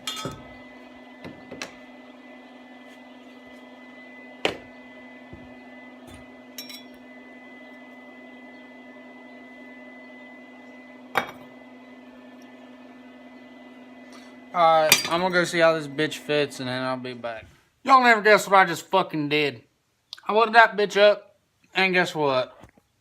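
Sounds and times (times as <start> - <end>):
metal tools clinking: 0.0 - 0.4, 6.6 - 7.0, 14.9 - 15.3
electrical hum: 0.0 - 19.5.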